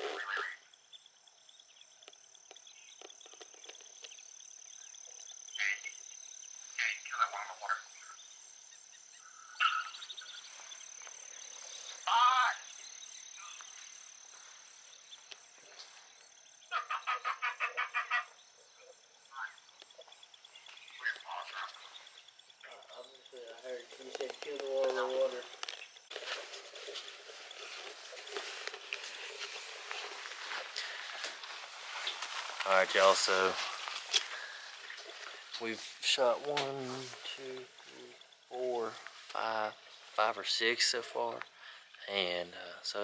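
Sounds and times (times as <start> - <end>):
croaking animal calls: 0.0 - 1.0, 2.0 - 43.0
high insect drone: 0.0 - 43.0
wavering animal call: 9.2 - 10.4.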